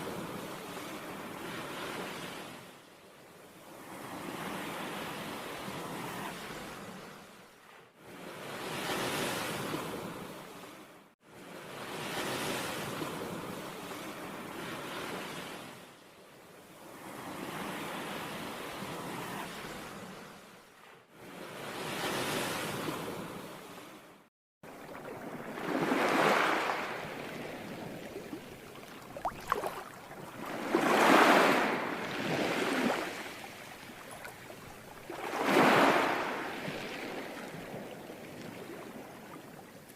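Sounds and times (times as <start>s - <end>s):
ocean waves breaking: 17.0s - 39.9s.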